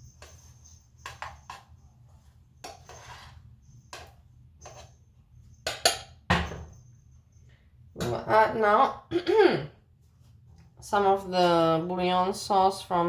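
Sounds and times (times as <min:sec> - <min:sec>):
utensil scraping: 0:02.6 - 0:05.0.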